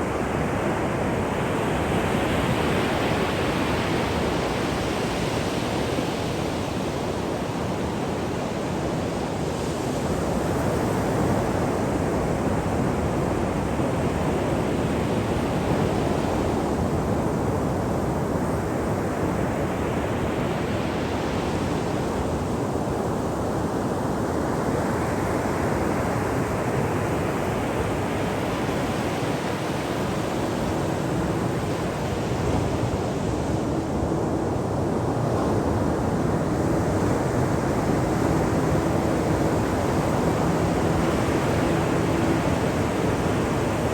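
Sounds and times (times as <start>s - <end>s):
ocean surf breaking: 34.6s - 43.9s.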